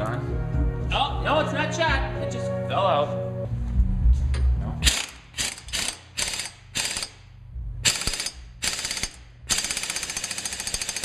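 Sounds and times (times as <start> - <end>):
ratchet wrench clicking: 4.8 - 11.0.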